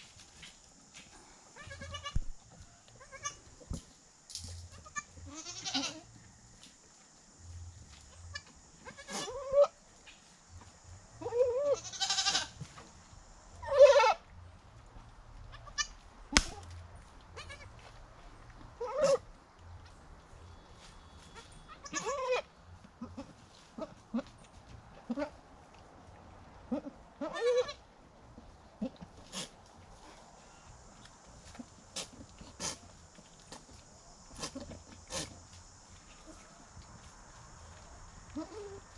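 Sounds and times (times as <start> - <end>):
goats bleating: 1.6 - 2.2, 4.8 - 6.1, 11.2 - 12.6, 17.4 - 17.7, 21.7 - 24.3, 26.7 - 27.8.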